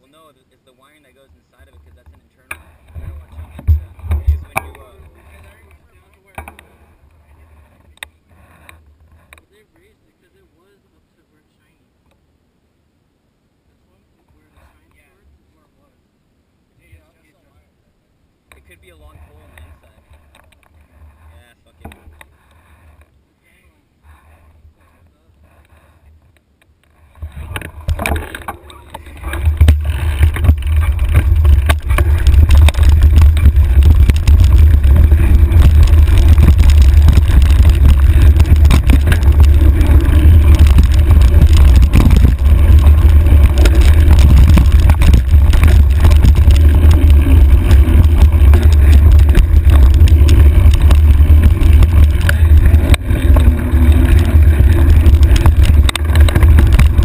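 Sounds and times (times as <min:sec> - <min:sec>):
bike knocks and rattles: 0:01.9 - 0:06.8, 0:27.2 - 0:57.0
wind buffeting microphone: 0:27.0 - 0:57.0.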